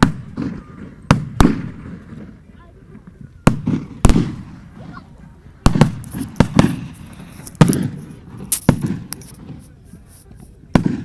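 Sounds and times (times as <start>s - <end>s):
fireworks shells bursting: 5.7s - 11.0s.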